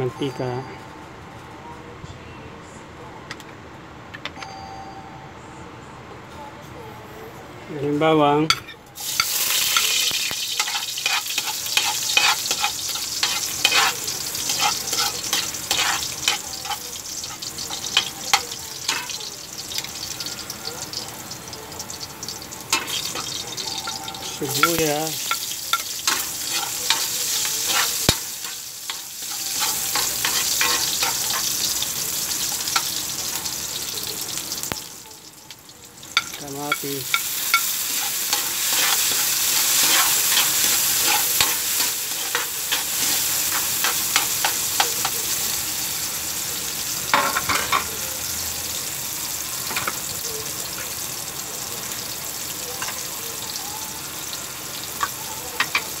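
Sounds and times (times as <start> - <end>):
food sizzling in hot oil: 9.0 - 56.0
metal spatula scraping a pan: 10.6 - 19.2, 22.7 - 31.8, 37.2 - 45.0.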